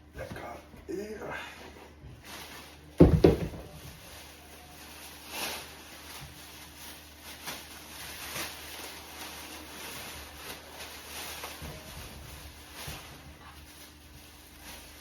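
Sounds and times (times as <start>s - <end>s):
soft rustles: 3.5s - 15.0s.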